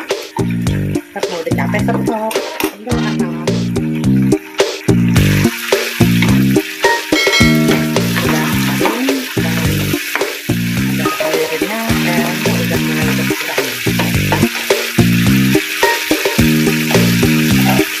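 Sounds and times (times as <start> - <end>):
background music melody: 0.0 - 18.0
chili paste sizzling in oil: 0.0 - 18.0
metal spoon stirring in pan: 10.8 - 18.0.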